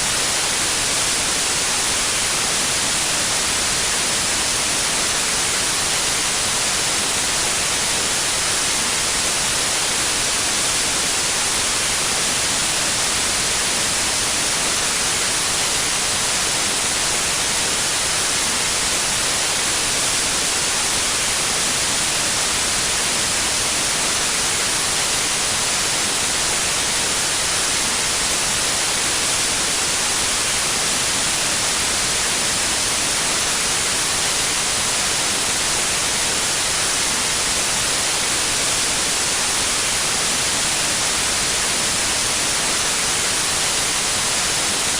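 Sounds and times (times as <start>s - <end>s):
white noise hiss: 0.0s - 44.9s.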